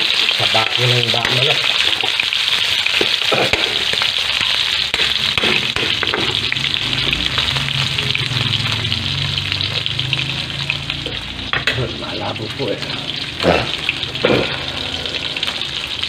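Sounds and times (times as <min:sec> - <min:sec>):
metal utensil scraping pan: 0:00.0 - 0:06.8
chicken sizzling in hot oil: 0:00.0 - 0:16.0.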